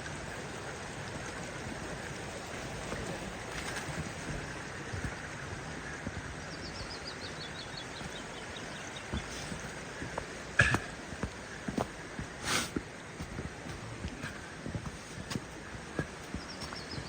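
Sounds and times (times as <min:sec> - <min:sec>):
creek rushing: 0:00.0 - 0:17.0
sharp knocks: 0:10.6 - 0:11.0.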